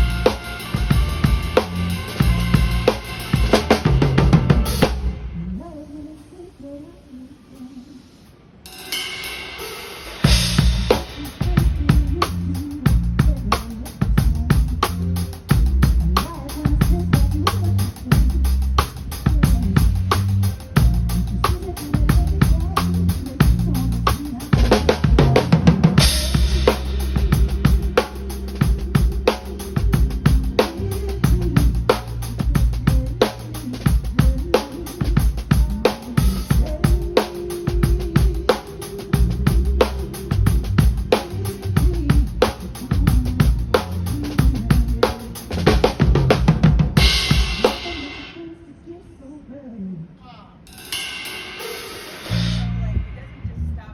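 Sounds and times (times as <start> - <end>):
low bass line: 0.0 - 5.2, 10.3 - 13.5, 14.2 - 33.2, 39.2 - 42.4, 52.3 - 53.9
drum kit: 0.0 - 5.3, 8.6 - 48.4, 50.7 - 53.9
cymbal wash: 8.6 - 11.4, 50.7 - 53.2.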